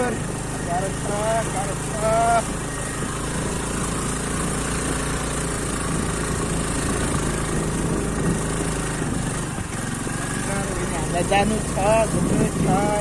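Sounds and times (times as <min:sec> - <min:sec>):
road and wind noise: 0:00.0 - 0:13.0
vehicle engine running: 0:00.0 - 0:13.0.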